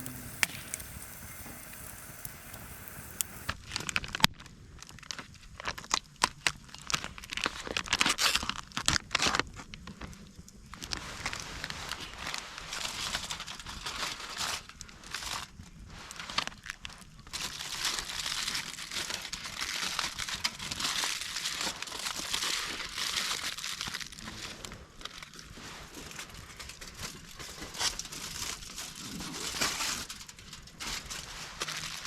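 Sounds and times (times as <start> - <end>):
material crinkling and rustling: 10.9 - 32.0.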